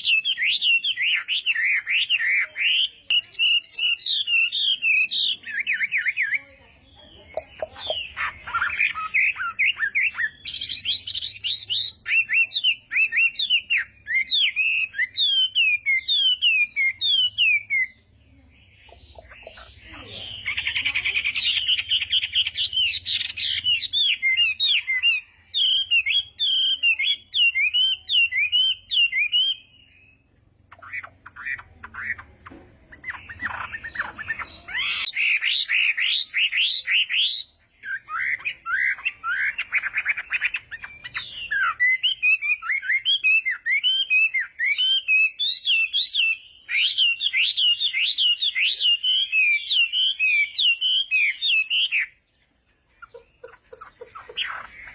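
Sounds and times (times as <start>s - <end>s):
bird singing whistled phrases: 0.0s - 6.4s, 7.3s - 18.0s, 18.6s - 32.2s, 33.0s - 52.2s.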